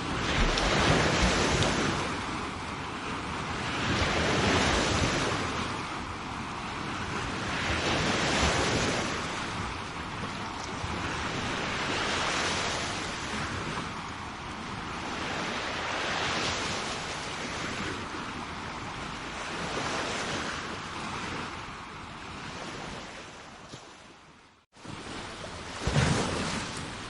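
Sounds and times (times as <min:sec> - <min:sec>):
sea waves breaking on shore: 0:00.0 - 0:27.0.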